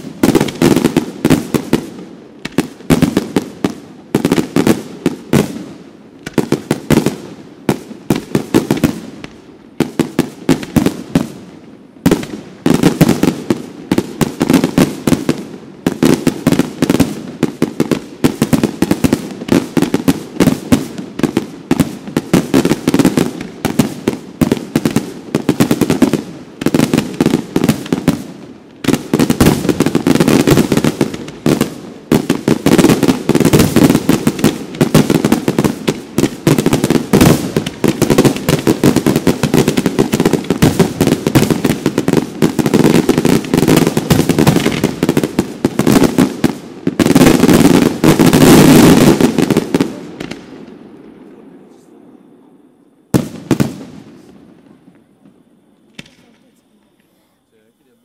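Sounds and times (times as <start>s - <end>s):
fireworks bursts and bangs: 0.0s - 52.2s, 53.1s - 58.0s.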